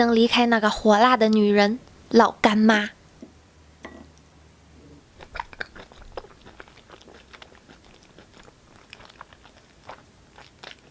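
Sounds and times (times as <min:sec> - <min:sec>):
crisp bites and chewing: 0:05.2 - 0:10.9.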